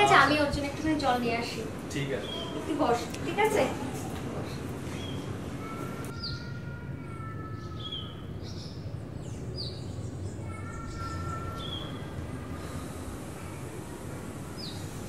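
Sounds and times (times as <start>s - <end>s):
low background hum: 0.0s - 15.0s
high downward bird chirps: 5.0s - 13.8s.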